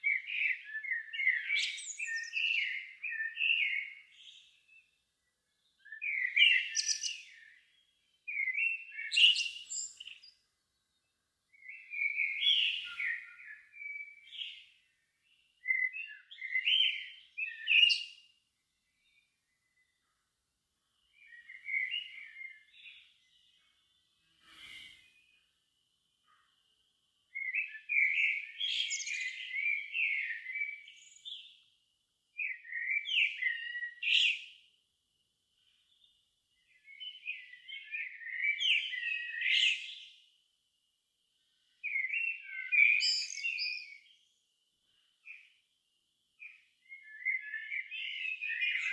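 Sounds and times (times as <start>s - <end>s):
songbird twittering: 0.0s - 10.4s, 11.0s - 18.3s, 21.0s - 25.5s, 27.3s - 31.6s, 32.4s - 34.6s, 35.9s - 40.2s, 41.8s - 44.4s, 46.4s - 48.9s.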